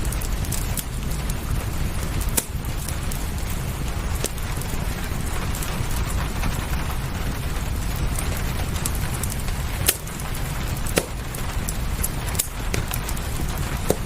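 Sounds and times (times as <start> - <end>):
fireplace crackling: 0.0 - 14.0
low rumble: 0.0 - 14.0
steady rain: 0.0 - 14.0
sharp loud pops: 2.3 - 2.6, 10.9 - 11.2.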